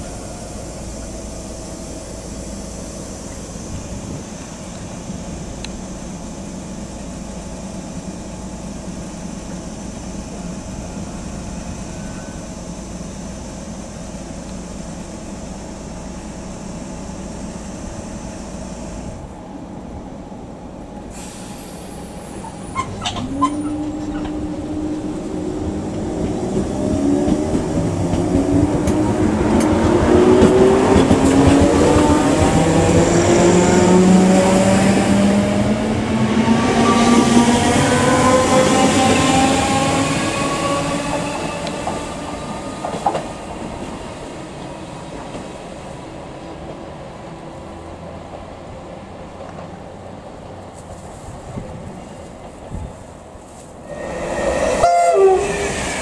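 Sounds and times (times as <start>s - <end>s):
train rumbling: 0.0s - 56.0s
train motors whining: 21.5s - 45.6s.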